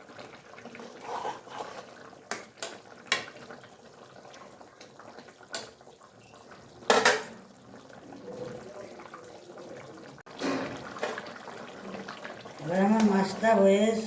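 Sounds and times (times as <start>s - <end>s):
curry simmering: 0.0s - 14.0s
metal utensil clattering against pot: 6.9s - 7.4s.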